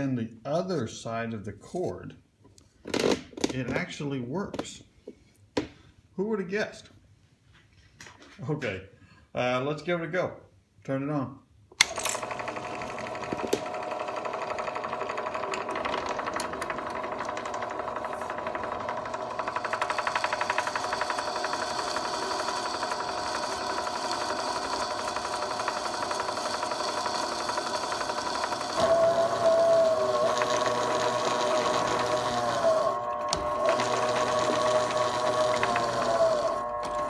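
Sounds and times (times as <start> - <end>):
drill press motor humming: 11.8 - 37.0
drill bit squealing through steel: 16.2 - 37.0.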